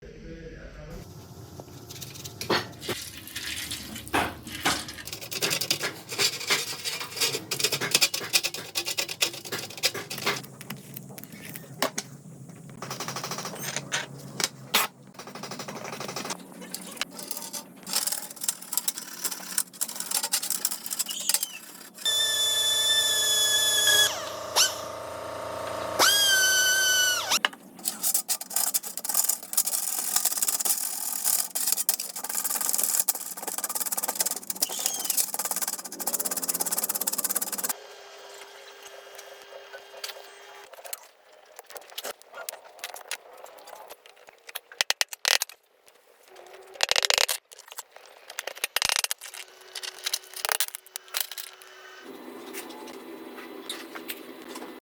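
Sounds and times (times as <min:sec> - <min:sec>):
tools clicking and scraping: 0:04.9 - 0:22.1, 0:27.2 - 0:37.8, 0:41.6 - 0:51.8
small machine whining: 0:17.9 - 0:27.4, 0:33.2 - 0:40.7, 0:49.3 - 0:54.8.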